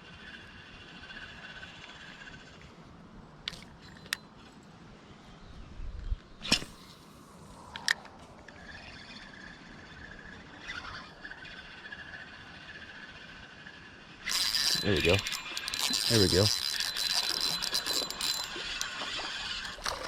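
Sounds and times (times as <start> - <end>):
fishing reel click: 3.5 - 4.2, 14.2 - 20.0
fishing rod cast whoosh: 6.4 - 7.0.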